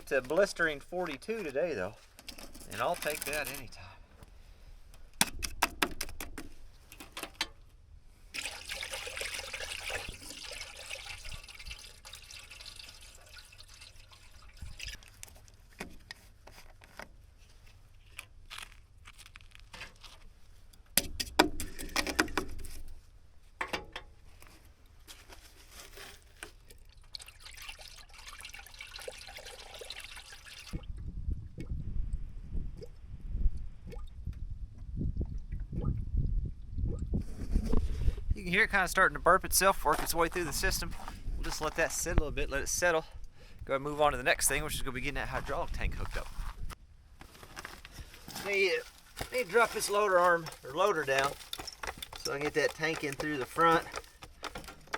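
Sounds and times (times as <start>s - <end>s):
liquid pouring and trickling: 8.3s - 15.8s, 26.5s - 31.8s.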